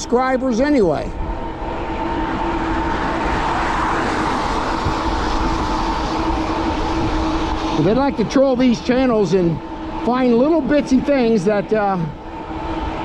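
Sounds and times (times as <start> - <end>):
electric hub motor whine: 0.0 - 13.0
wind and tyre rush: 0.0 - 13.0.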